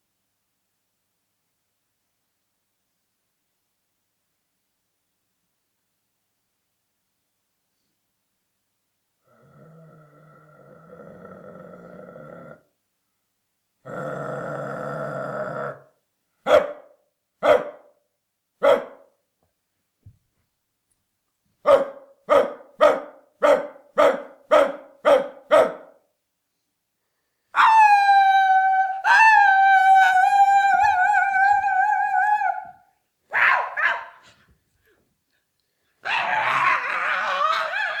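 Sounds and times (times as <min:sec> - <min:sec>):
dog barking: 0:16.4 - 0:17.9, 0:18.6 - 0:19.2, 0:21.6 - 0:26.0, 0:32.5 - 0:34.4, 0:36.0 - 0:36.6
dog howling: 0:27.6 - 0:34.3, 0:36.0 - 0:38.0.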